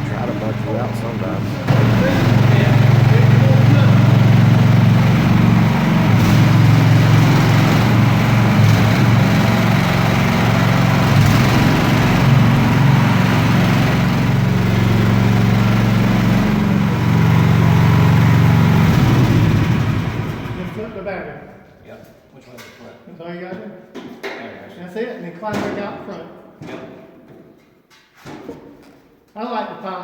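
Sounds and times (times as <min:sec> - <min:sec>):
mini excavator engine under load: 0:00.0 - 0:21.1.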